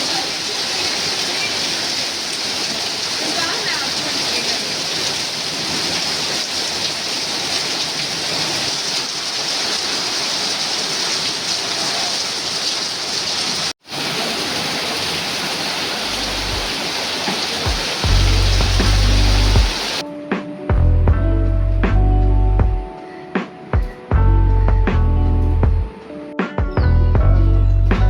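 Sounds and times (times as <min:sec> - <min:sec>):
heavy rain: 0:00.0 - 0:20.1.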